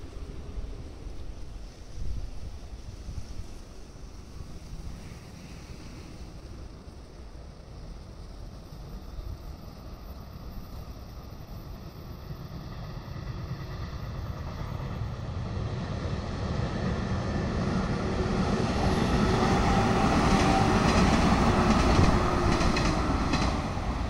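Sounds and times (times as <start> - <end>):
electric train passing: 0.0 - 24.0
wheels clacking over rail joints: 19.6 - 24.0.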